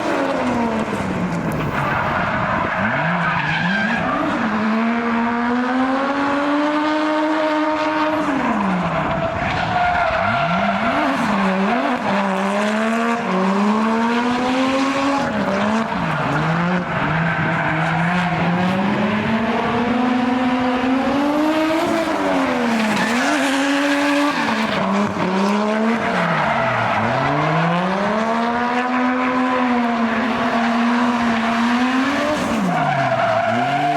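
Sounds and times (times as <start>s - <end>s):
car engine revving hard: 10.2s - 33.9s.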